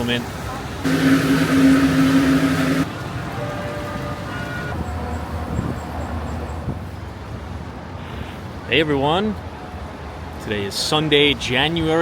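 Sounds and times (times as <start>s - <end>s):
loud steady hiss: 0.8s - 2.9s
low held tone: 0.9s - 2.9s.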